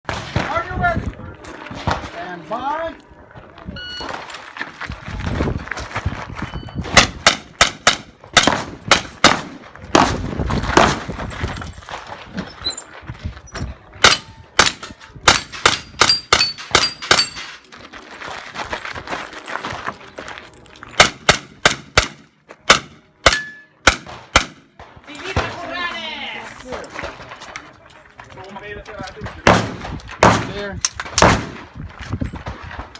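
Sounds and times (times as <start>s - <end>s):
pistol shots: 7.0s - 11.1s, 14.0s - 17.4s, 21.0s - 25.6s, 29.4s - 31.7s.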